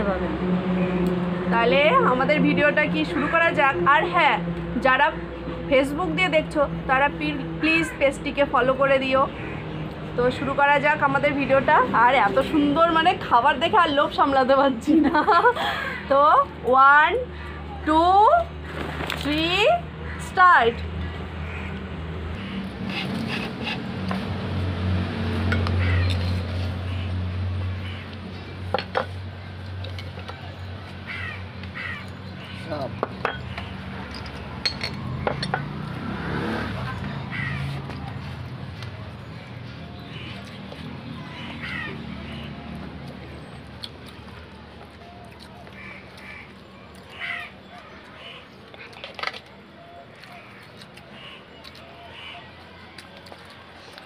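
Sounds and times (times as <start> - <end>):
crow cawing: 9.2 - 9.8, 20.1 - 21.8, 22.4 - 22.7, 25.7 - 26.1, 27.7 - 28.2, 31.1 - 32.7, 37.3 - 37.7, 41.2 - 42.5, 45.6 - 46.5, 47.1 - 48.6, 50.2 - 51.4, 52.0 - 52.5
dishware clicks and clinks: 33.0 - 35.7
low background murmur: 36.6 - 54.0.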